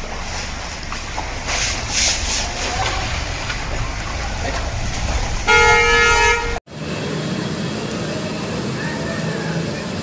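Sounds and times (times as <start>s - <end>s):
low rumble: 0.0s - 6.6s
vehicle horn: 5.5s - 6.6s.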